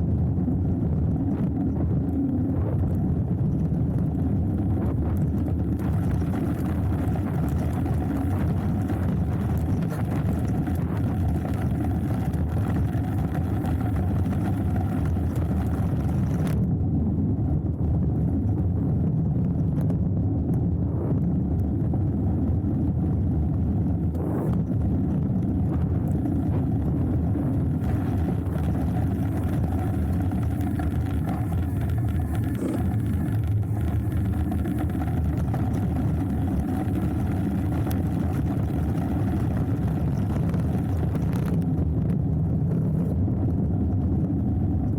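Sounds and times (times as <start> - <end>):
wind on microphone: 0.0 - 44.9
bike tyres on dirt: 5.4 - 16.5, 24.9 - 42.1.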